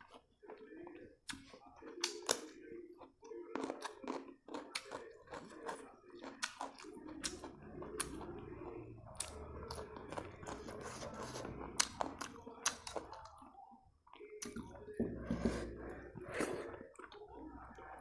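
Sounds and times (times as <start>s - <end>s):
carrot crunching: 3.5s - 13.4s.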